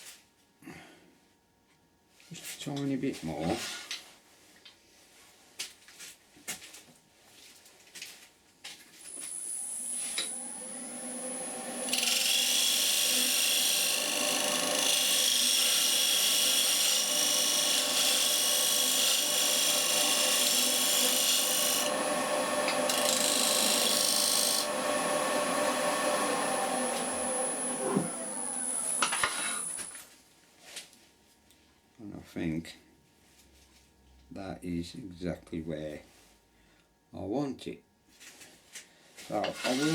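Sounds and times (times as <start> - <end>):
power tool grinding wood: 9.1 - 30.0.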